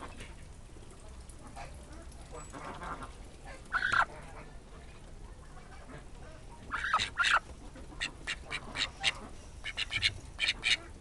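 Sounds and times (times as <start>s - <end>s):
domestic birds calling: 6.7s - 7.4s.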